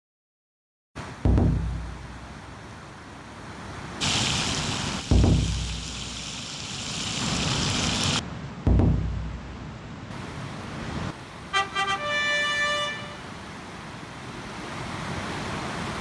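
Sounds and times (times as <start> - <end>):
deep booming hits: 1.2 - 2.3, 5.1 - 6.0, 8.7 - 9.8
loud rushing hiss: 3.6 - 11.6.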